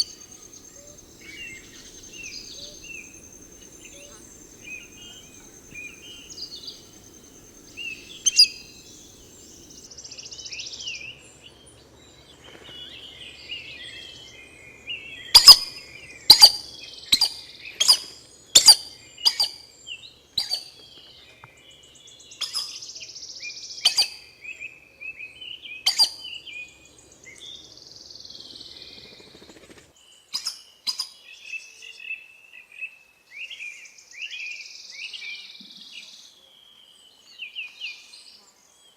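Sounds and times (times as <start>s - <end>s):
forest birds chirping: 0.0s - 9.9s.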